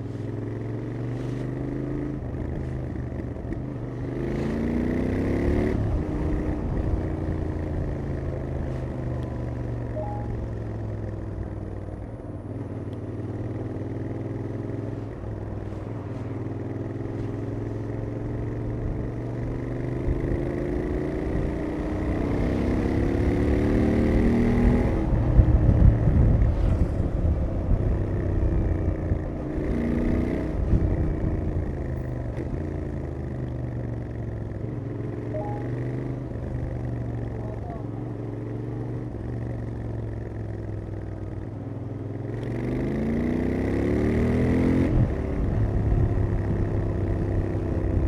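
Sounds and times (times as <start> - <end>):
motorcycle engine revving: 0.0 - 11.4, 13.0 - 48.0
heavy low rush: 24.9 - 29.7.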